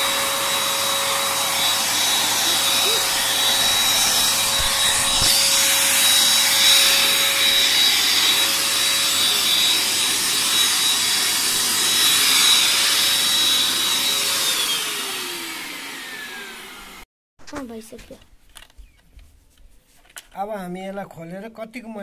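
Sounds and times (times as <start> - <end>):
handheld vacuum cleaner whining: 0.0 - 17.1.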